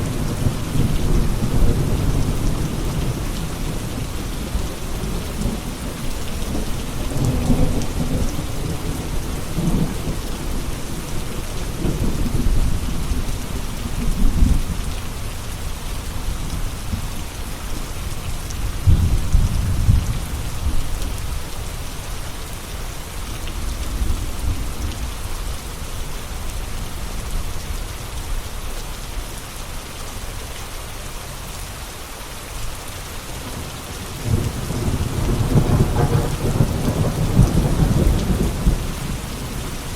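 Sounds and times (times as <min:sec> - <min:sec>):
steady rain: 0:00.0 - 0:39.9
thunder rumbling: 0:33.4 - 0:39.9.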